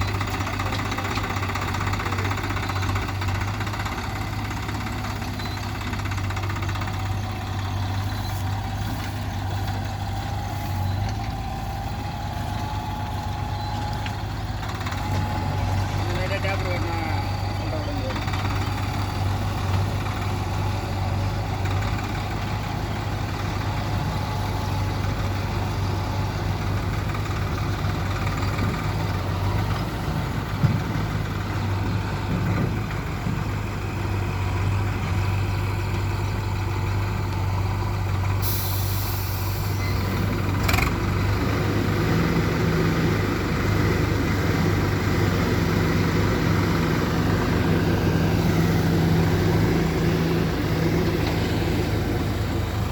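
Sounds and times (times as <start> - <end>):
tractor diesel engine running: 0.0 - 52.9
brief hiss: 38.4 - 39.8.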